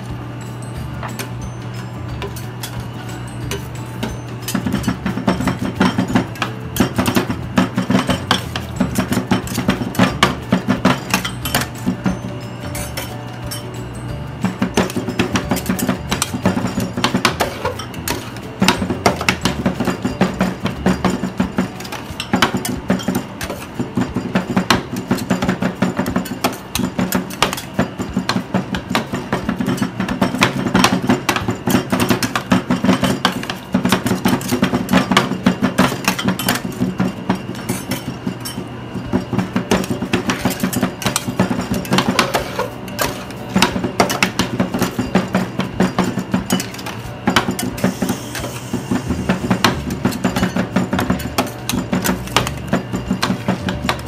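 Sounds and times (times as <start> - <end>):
metal spatulas chopping and scraping: 3.5 - 13.7, 14.5 - 54.0.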